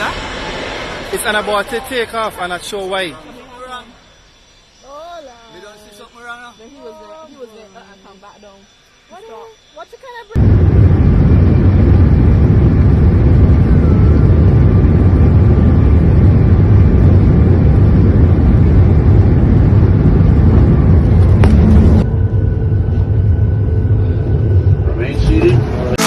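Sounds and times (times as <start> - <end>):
jet airliner engine rumble: 0.0 - 4.4, 10.4 - 26.0.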